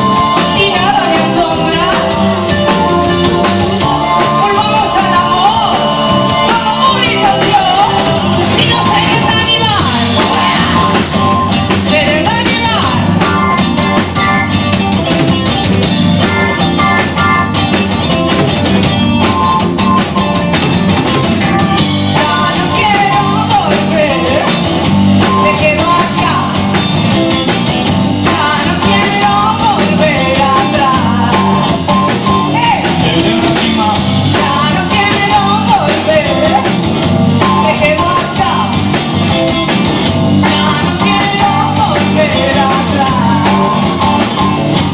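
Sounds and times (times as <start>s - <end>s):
person singing: 0.0s - 14.4s, 22.1s - 26.8s, 28.2s - 39.4s, 40.3s - 44.6s
drum kit: 0.0s - 44.9s
live rock band playing: 0.0s - 44.9s.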